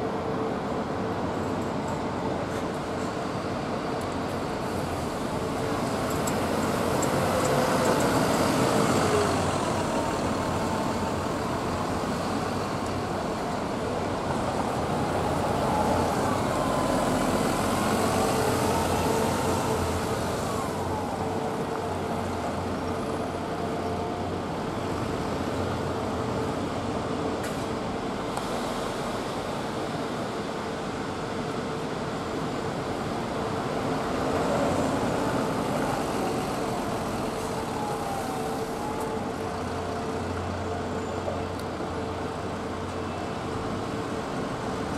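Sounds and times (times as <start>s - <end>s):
traffic rumble and hiss: 0.0s - 44.9s.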